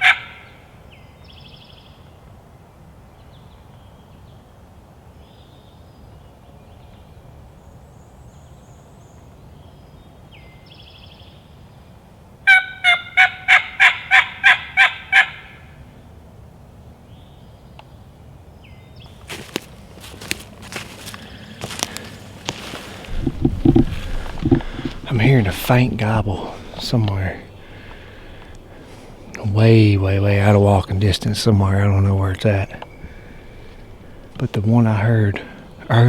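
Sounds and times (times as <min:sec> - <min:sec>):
turkey call yelps: 0:00.0 - 0:00.5, 0:12.5 - 0:15.6
faint songbirds calling: 0:00.0 - 0:02.3, 0:03.1 - 0:11.8, 0:16.8 - 0:36.0.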